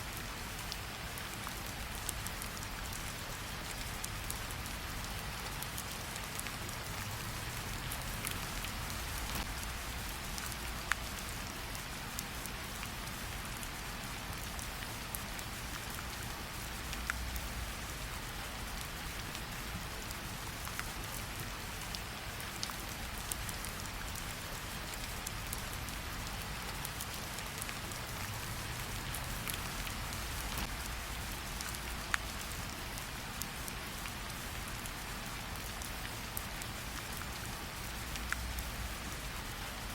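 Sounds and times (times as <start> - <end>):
steady rain falling: 0.0 - 39.9
wood fire crackling: 5.8 - 11.0, 26.9 - 32.4.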